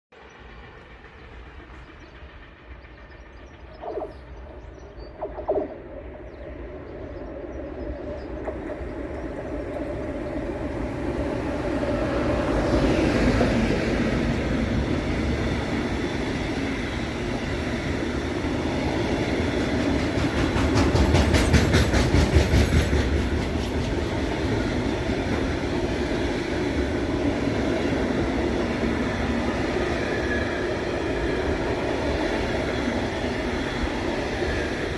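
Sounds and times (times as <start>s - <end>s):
freight train passing: 0.1s - 34.9s
wheels clicking over rail joints: 19.6s - 27.0s.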